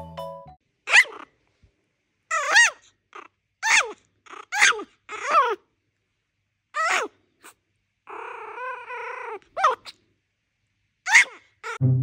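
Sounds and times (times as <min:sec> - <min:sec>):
puppy yelping barks: 0:00.9 - 0:01.4, 0:02.3 - 0:05.6, 0:06.8 - 0:10.0, 0:11.1 - 0:11.8.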